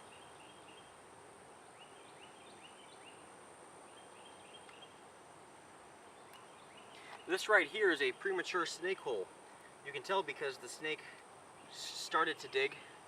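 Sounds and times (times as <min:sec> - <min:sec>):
bird chirping: 0:00.0 - 0:01.0, 0:01.6 - 0:05.0, 0:06.0 - 0:09.0, 0:09.6 - 0:13.0
steady high-pitched hiss: 0:00.0 - 0:13.0.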